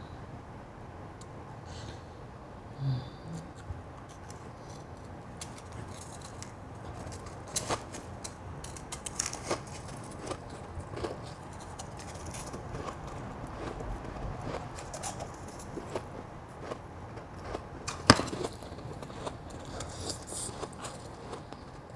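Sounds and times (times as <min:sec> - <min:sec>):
chewing crunchy ice: 0:04.0 - 0:21.9.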